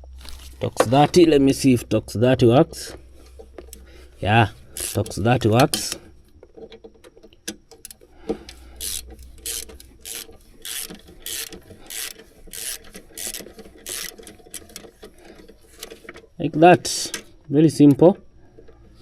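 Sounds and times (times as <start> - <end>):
ratchet clicks: 2.7 - 16.2
ratchet pawl rasping: 2.8 - 6.2, 7.6 - 17.4.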